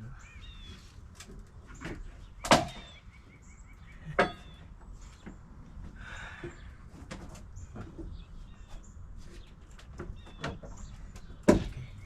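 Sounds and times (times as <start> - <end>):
knocks on wooden boards: 10.0 - 12.0.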